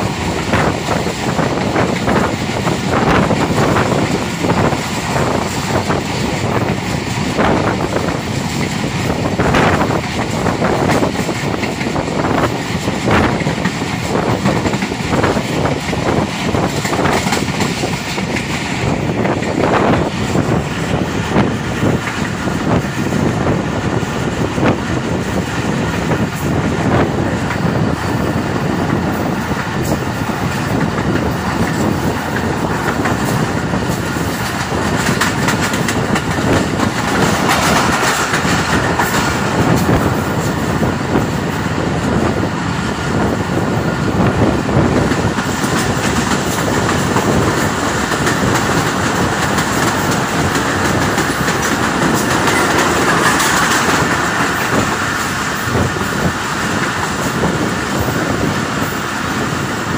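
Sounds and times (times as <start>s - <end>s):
train rumbling: 0.0s - 59.9s
wheels clattering on track: 0.0s - 59.9s.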